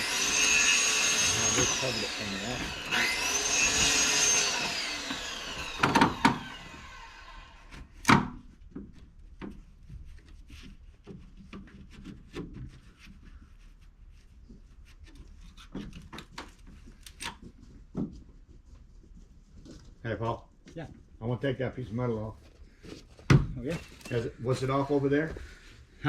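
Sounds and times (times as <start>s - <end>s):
power tool whine winding down: 0.0s - 7.9s
small knocks and rubbing: 7.6s - 21.2s.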